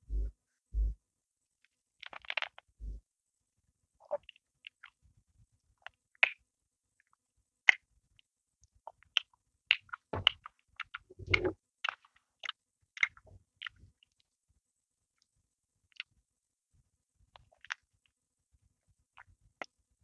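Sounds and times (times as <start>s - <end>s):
chewing bread: 2.0s - 2.7s.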